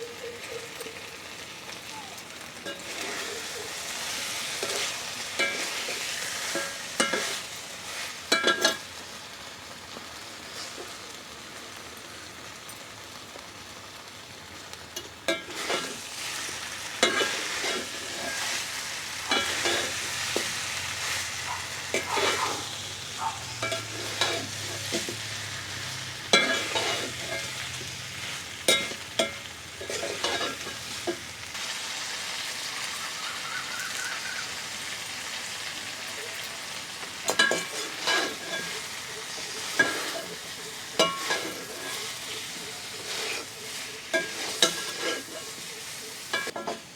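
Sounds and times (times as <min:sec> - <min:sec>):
chicken sizzling in oil: 0:00.0 - 0:46.9
utensil scraping a pan: 0:02.6 - 0:08.9, 0:10.5 - 0:11.0, 0:15.0 - 0:31.5, 0:37.2 - 0:46.9.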